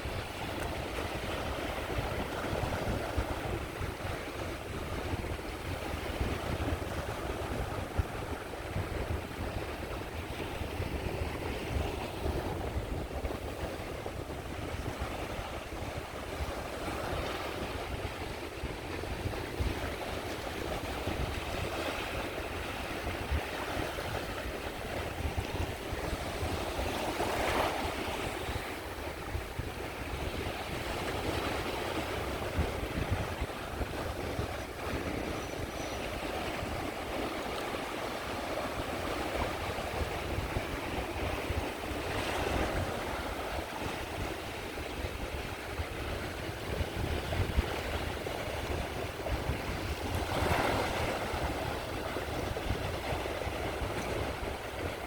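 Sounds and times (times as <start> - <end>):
sea waves breaking on shore: 0.0 - 55.0
wind rumble on microphone: 0.0 - 55.0.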